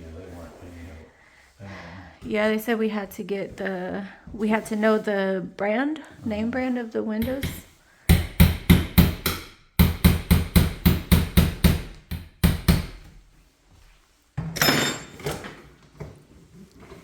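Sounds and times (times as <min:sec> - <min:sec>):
hammer striking window frame: 0:07.2 - 0:13.1.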